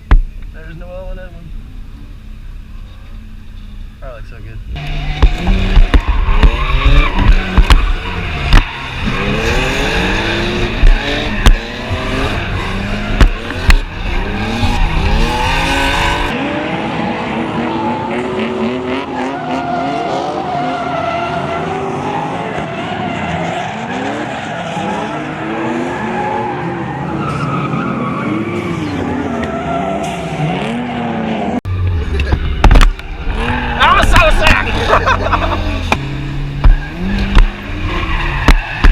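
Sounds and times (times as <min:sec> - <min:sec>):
car engines revving: 0:00.0 - 0:38.9.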